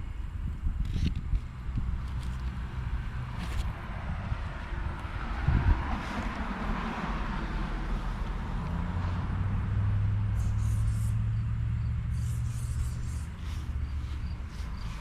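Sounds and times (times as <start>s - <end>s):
vehicle engine rumbling: 0.0s - 15.0s
traffic hiss: 5.8s - 15.0s.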